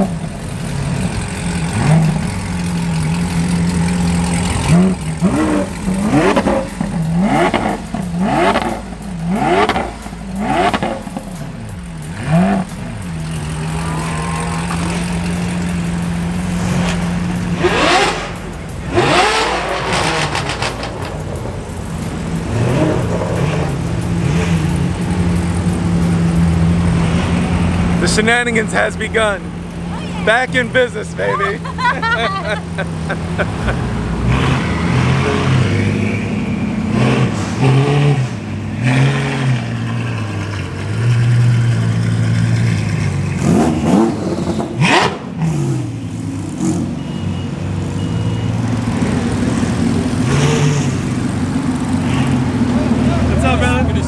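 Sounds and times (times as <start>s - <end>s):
car engine idling: 0.0s - 34.3s, 45.2s - 54.0s
car engine revving: 0.0s - 54.0s.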